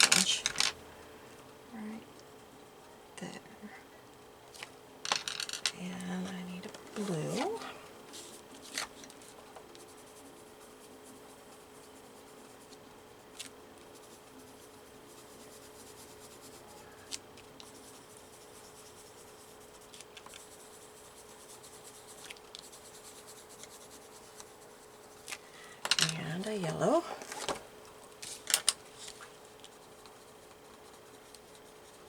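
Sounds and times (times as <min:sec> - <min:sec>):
faint steady hum: 0:00.0 - 0:32.0
pencil scribbling on paper: 0:09.2 - 0:12.8, 0:13.9 - 0:16.9, 0:17.6 - 0:25.2, 0:29.6 - 0:32.0.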